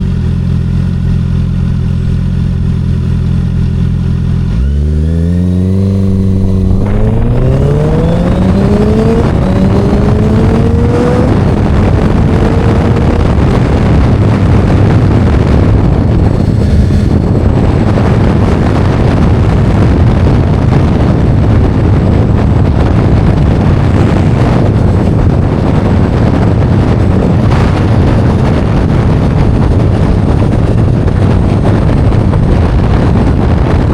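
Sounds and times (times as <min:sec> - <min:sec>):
vehicle engine revving: 0:00.0 - 0:33.9
wind noise on microphone: 0:00.0 - 0:33.9.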